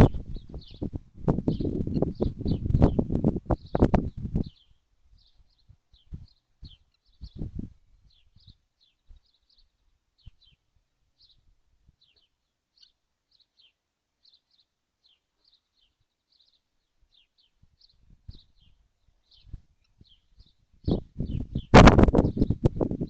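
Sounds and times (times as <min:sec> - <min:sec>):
thin bird chirps: 0:01.5 - 0:22.6.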